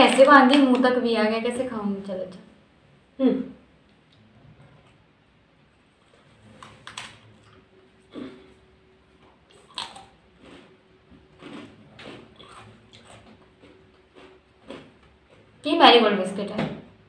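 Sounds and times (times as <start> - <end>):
faint steady hum: 0.0 - 17.0
person chewing biscuit: 9.2 - 15.6.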